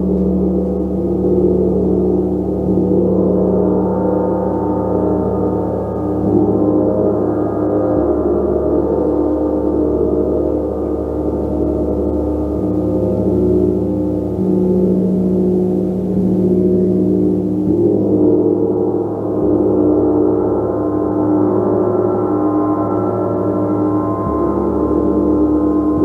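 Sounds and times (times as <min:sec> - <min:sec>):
gong ringing: 0:20.4 - 0:26.0.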